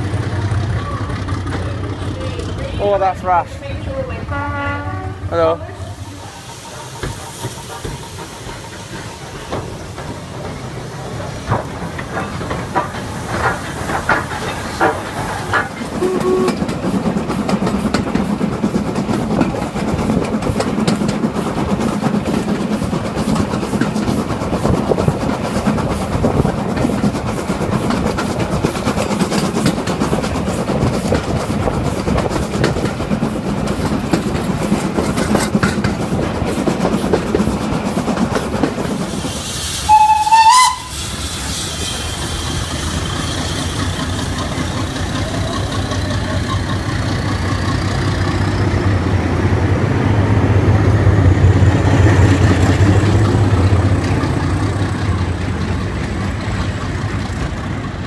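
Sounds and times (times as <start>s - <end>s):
train wheels clattering on rails: 0.0s - 4.4s, 5.8s - 58.0s
steam hissing: 5.6s - 49.1s.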